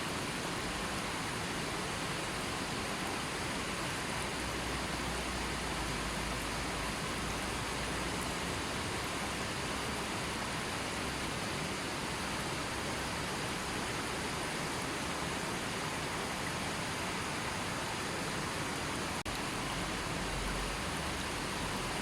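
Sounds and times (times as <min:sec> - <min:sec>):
river flowing: 0:00.0 - 0:22.0.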